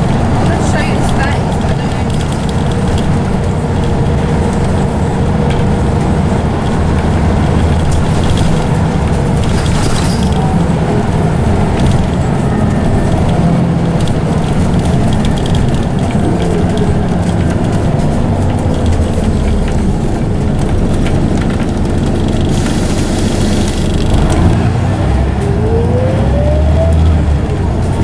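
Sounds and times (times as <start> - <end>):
bus engine rumble: 0.0 - 28.0
rattles: 6.6 - 24.6.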